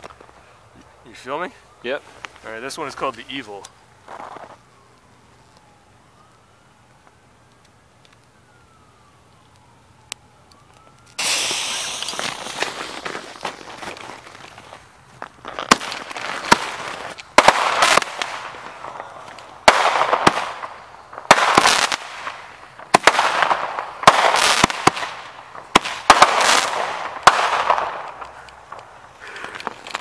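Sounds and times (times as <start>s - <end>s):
crackling hiss of fireworks: 0.0s - 30.0s
firework bangs: 11.2s - 14.8s, 15.4s - 30.0s.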